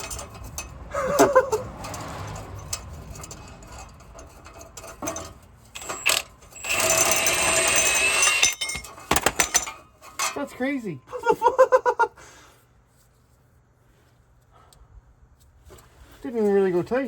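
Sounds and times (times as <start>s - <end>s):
metal parts clinking: 0.0s - 10.8s.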